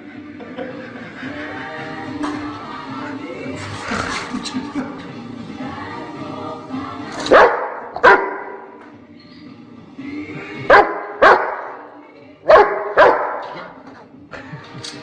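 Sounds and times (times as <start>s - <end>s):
dog barking: 7.3s - 8.6s, 10.7s - 11.8s, 12.5s - 13.7s.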